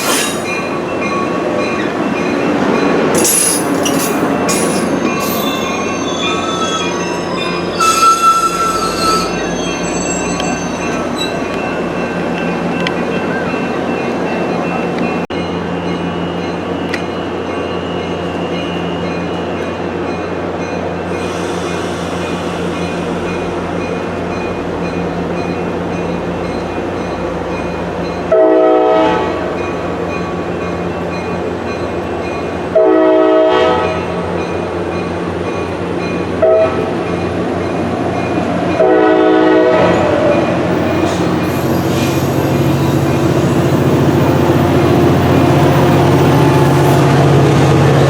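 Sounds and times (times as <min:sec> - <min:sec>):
diesel locomotive engine drone: 0:00.0 - 0:48.0
locomotive horn blasts: 0:28.3 - 0:29.4, 0:32.7 - 0:34.0, 0:36.4 - 0:36.9, 0:38.8 - 0:40.1.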